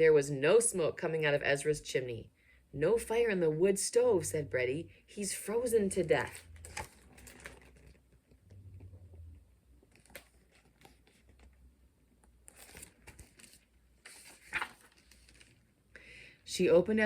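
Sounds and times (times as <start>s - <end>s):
paper rustling: 6.3s - 8.4s, 9.8s - 11.6s, 12.4s - 15.7s.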